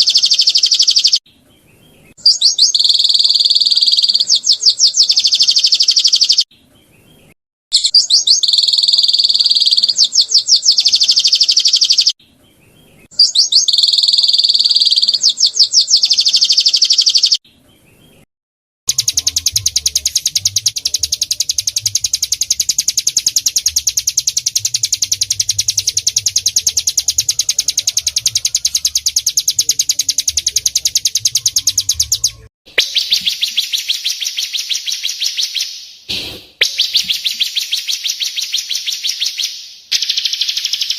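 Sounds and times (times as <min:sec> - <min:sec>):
songbird trilled chirping: 0:00.0 - 0:01.2, 0:02.2 - 0:06.5, 0:07.8 - 0:12.2, 0:13.0 - 0:17.4, 0:18.9 - 0:36.0, 0:36.6 - 0:40.9
fast buzzing bird trill: 0:07.8 - 0:12.2, 0:18.9 - 0:35.7.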